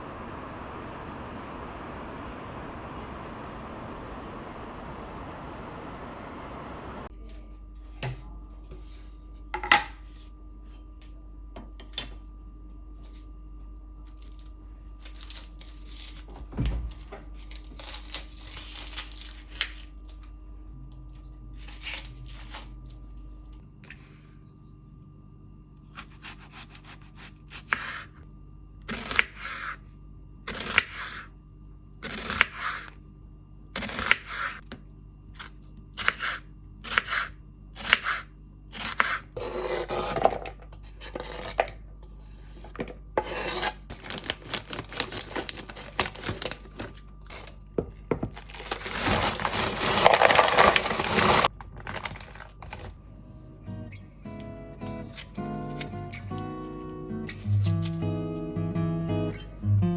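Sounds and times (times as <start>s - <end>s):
faint steady hum: 0.0s - 7.5s.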